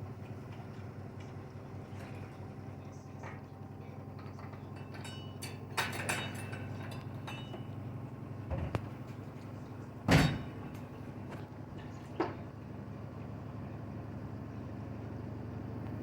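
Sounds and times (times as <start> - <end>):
washing machine drum humming: 4.5 - 12.0.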